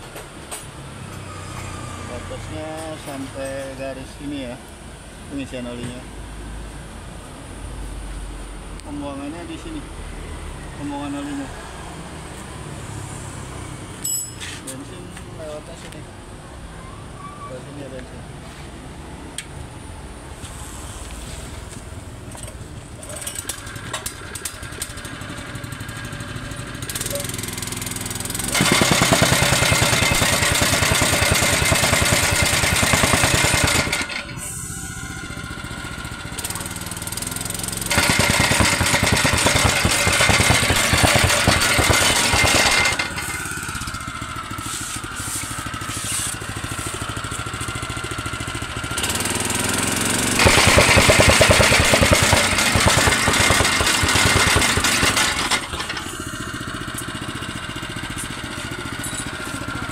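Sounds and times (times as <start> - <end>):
petrol engine idling: 21.7 - 59.9
tamping rammer pounding: 23.0 - 34.4, 35.2 - 59.9.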